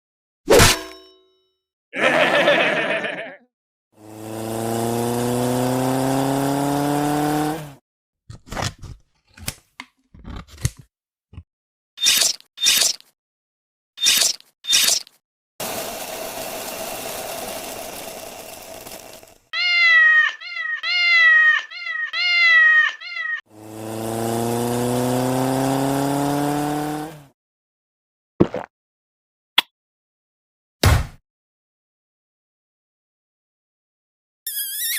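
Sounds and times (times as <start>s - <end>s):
hiss: 15.6s - 19.4s
cat meowing: 19.6s - 23.4s.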